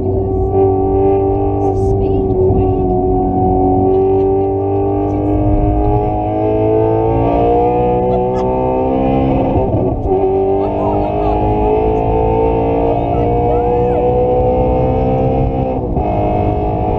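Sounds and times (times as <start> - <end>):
car engine accelerating: 0.0 - 16.9.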